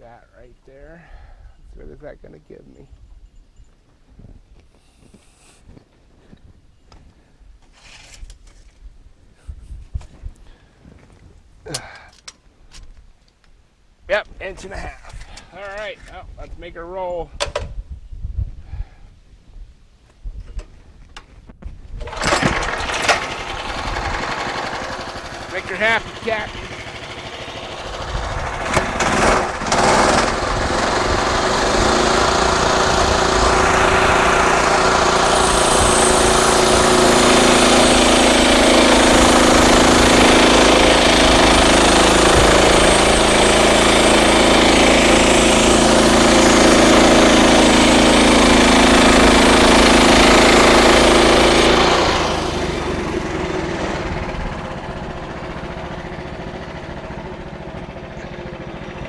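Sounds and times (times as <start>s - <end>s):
sawmill cutting log: 22.0s - 58.8s.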